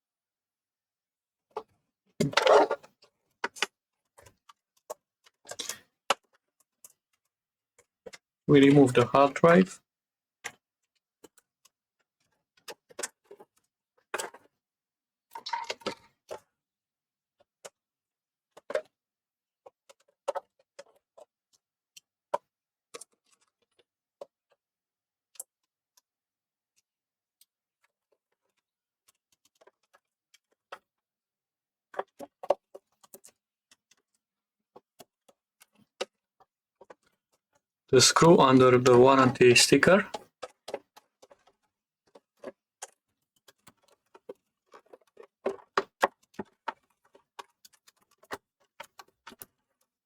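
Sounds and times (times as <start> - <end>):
plastic and metal parts clicking: 27.8 - 30.9.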